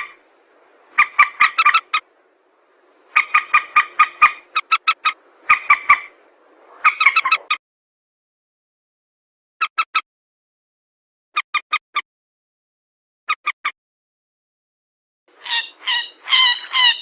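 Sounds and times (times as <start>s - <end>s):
rail bird calling: 0.8s - 2.1s, 3.0s - 7.6s, 15.3s - 17.0s.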